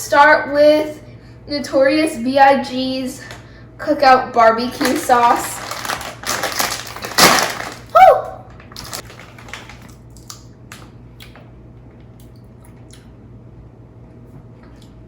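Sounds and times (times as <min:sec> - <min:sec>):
chip bag tearing and crinkling: 0:04.7 - 0:10.4.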